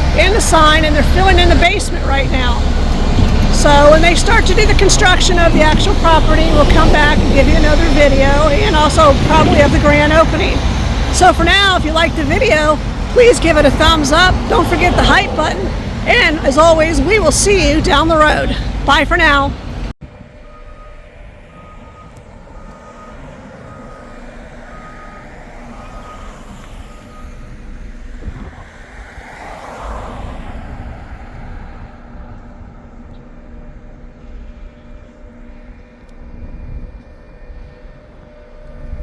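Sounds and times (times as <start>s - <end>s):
diesel engine rumble: 0.0s - 39.0s
backup alarm beeping: 20.2s - 27.9s.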